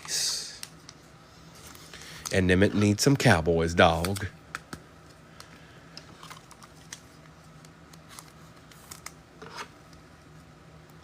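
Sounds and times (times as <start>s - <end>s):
steady low hum: 0.0s - 11.0s
trading cards and wrappers handled: 3.8s - 9.7s.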